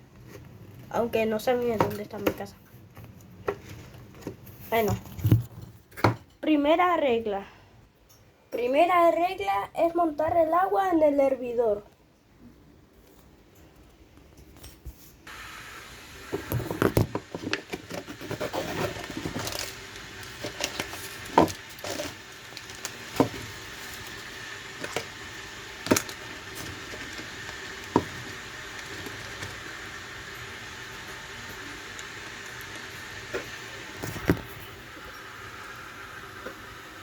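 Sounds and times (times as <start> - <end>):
kettle hissing: 15.3 - 37.0.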